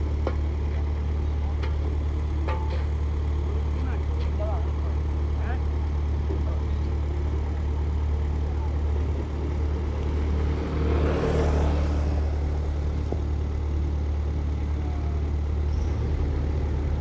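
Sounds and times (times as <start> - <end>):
vehicle engine running: 0.0 - 17.0
vehicle passing: 9.7 - 13.0.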